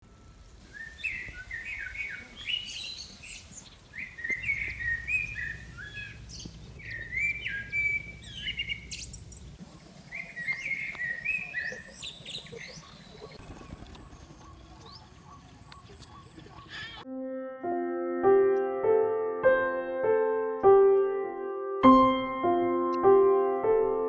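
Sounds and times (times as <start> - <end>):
small birds chirping: 0.1 - 17.0.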